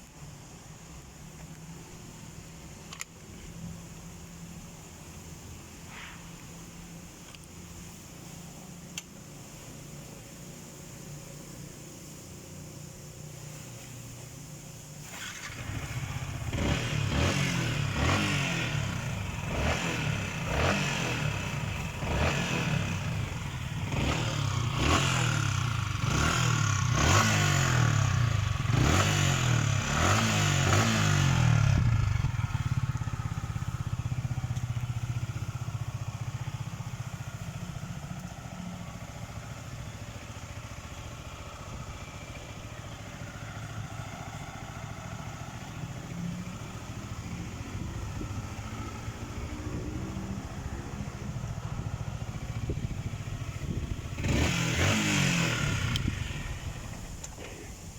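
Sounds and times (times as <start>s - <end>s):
motorcycle engine revving: 14.8s - 57.9s.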